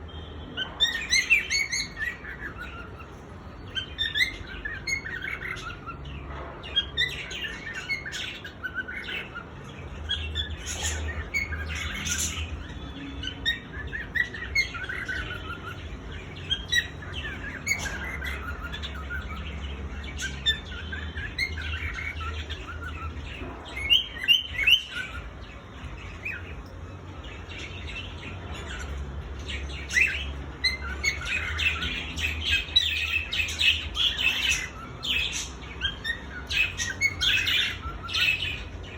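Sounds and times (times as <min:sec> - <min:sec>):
cockatiel chirps and whistles: 0:00.6 - 0:06.0.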